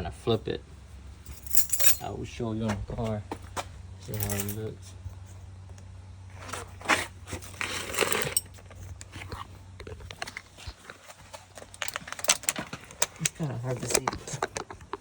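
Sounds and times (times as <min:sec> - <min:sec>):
rustling: 0:01.2 - 0:02.0.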